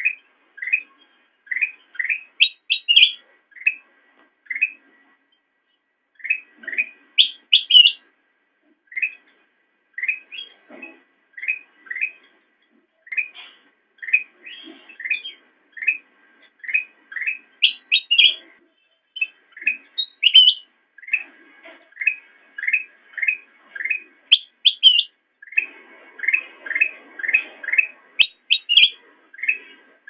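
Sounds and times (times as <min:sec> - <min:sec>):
bulbul chirping: 0:01.5 - 0:03.8, 0:06.2 - 0:08.0, 0:16.6 - 0:18.4, 0:19.2 - 0:21.3, 0:22.0 - 0:29.6.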